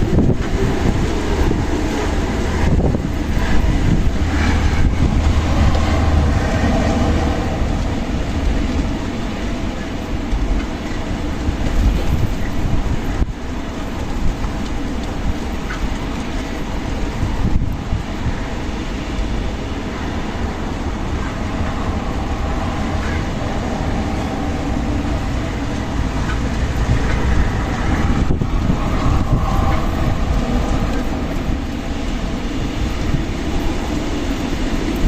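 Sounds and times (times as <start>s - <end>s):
strong wind blowing: 0.0s - 35.0s.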